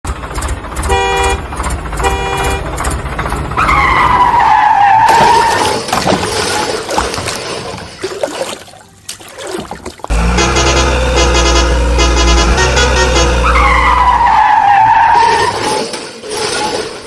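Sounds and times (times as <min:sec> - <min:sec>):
horn honks: 0:00.9 - 0:02.8, 0:10.1 - 0:15.7
cartoon engine rumble: 0:10.1 - 0:14.2.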